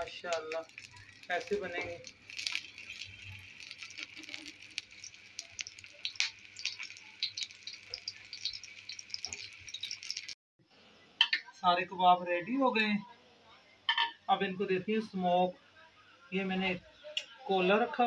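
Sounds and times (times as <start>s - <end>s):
meat sizzling on a griddle: 0.0s - 10.4s.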